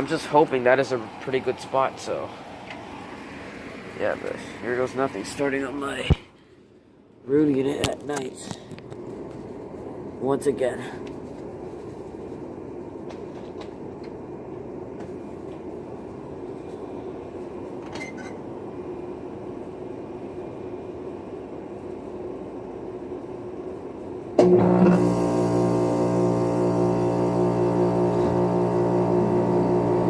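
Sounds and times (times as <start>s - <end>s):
air conditioning hum: 0.0s - 30.0s
compressor buzzing hum: 24.3s - 30.0s.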